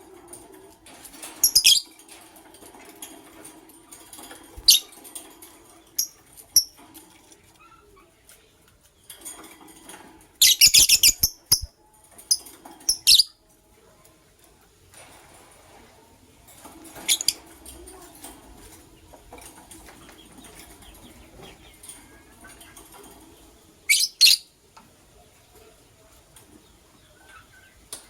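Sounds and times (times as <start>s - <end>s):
wings flapping: 0.3s - 7.6s
lovebirds chirping shrilly: 10.4s - 11.7s, 23.9s - 24.5s.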